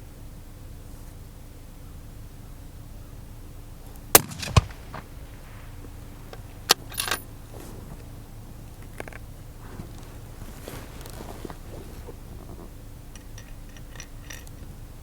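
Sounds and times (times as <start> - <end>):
rifle bolt metallic clacks: 4.2 - 5.1, 6.3 - 7.3
brief metallic jingle: 6.7 - 7.3.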